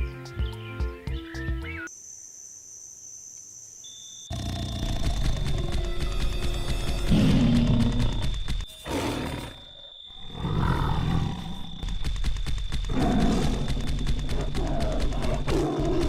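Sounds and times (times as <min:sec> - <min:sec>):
tiger roaring and growling: 0:04.3 - 0:06.3, 0:07.0 - 0:12.1, 0:12.9 - 0:16.0.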